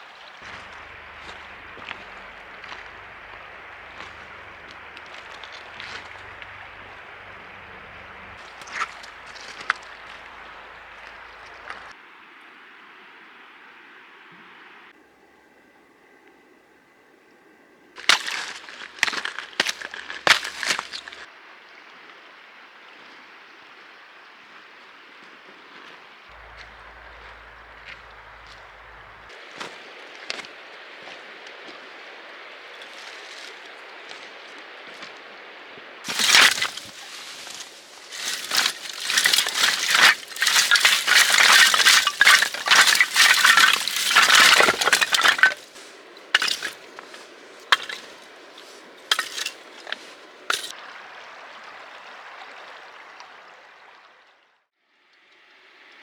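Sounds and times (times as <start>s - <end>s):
sharp crisp clinks and cracks: 0.4s - 11.9s, 18.1s - 21.3s, 36.1s - 37.2s, 38.1s - 50.7s.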